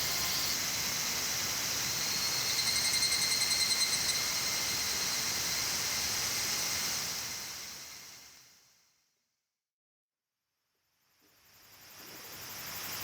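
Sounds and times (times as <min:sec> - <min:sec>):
insects chirring: 0:00.0 - 0:06.6
fast pulsing insect trill: 0:00.0 - 0:08.0.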